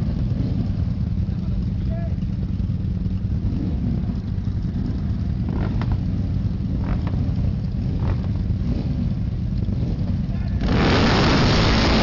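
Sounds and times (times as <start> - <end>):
motorcycle engines idling: 0.0 - 10.7.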